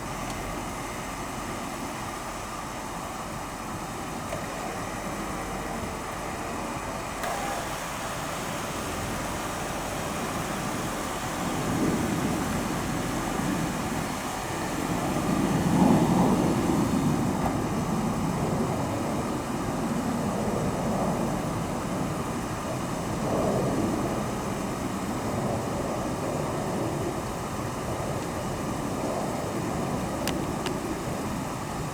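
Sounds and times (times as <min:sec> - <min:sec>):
car engine running and revving: 0:04.1 - 0:18.1.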